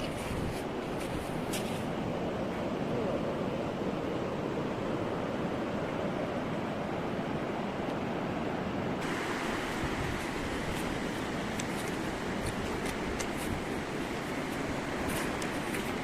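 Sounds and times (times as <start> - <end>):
sea surf washing on beach: 0.0 - 16.0.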